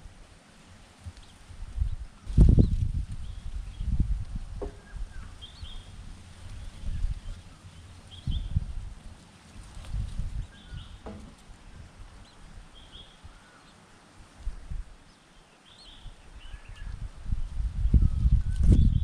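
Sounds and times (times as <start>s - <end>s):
faint bird chirps: 15.0s - 17.0s.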